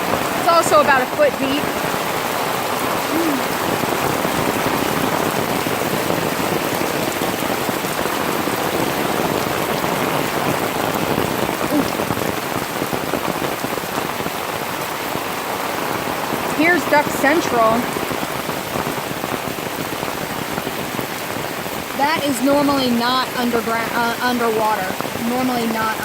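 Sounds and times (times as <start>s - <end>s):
heavy rain on umbrella: 0.0s - 26.0s.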